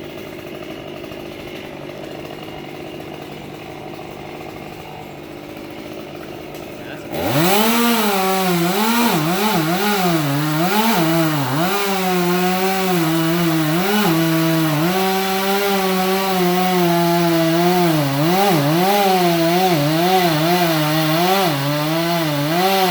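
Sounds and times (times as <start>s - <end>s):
engine revving: 5.6s - 22.9s.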